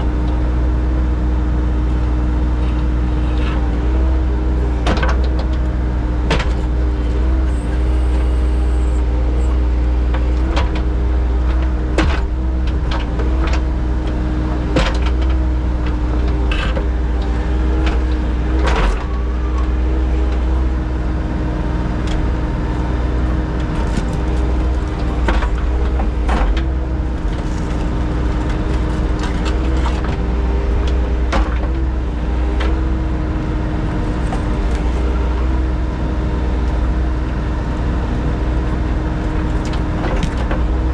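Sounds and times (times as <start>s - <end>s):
engine droning: 0.0s - 40.9s.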